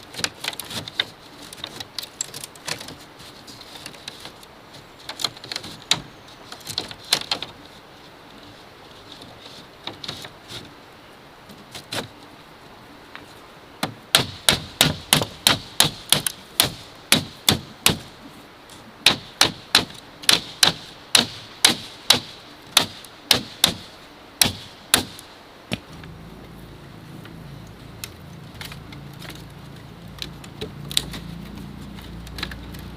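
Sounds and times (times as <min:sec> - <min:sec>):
hand tool striking bamboo: 0:13.8 - 0:18.1, 0:19.0 - 0:26.0.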